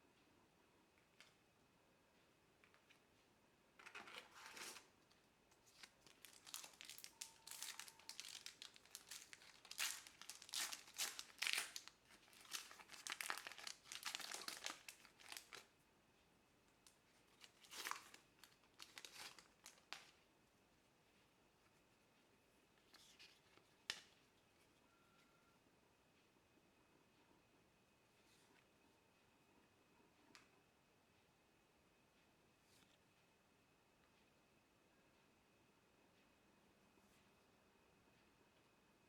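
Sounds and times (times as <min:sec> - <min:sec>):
wrappers crinkling and tearing: 0:05.6 - 0:15.7, 0:17.4 - 0:20.1.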